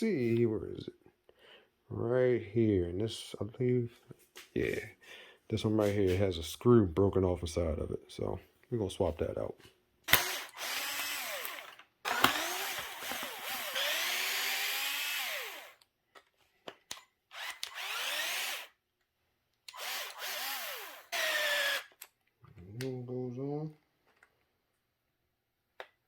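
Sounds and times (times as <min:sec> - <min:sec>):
power drill backing out screws: 0:10.1 - 0:15.8, 0:17.3 - 0:18.7, 0:19.7 - 0:22.0.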